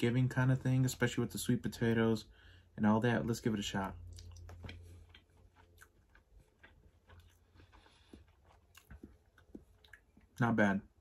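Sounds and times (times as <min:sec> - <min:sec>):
faint chewing: 0:03.9 - 0:10.4.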